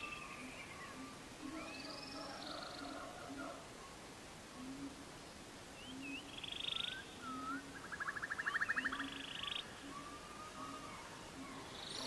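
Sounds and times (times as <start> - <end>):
bird whistling and trilling: 5.8 - 12.0.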